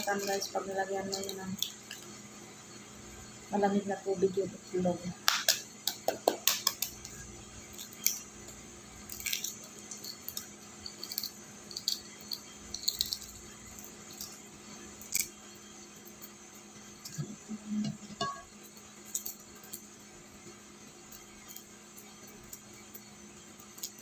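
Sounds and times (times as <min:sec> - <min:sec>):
egg shell cracking: 0:00.0 - 0:02.2, 0:05.2 - 0:15.4, 0:18.7 - 0:19.9, 0:23.6 - 0:24.0
faint steady hum: 0:00.0 - 0:24.0.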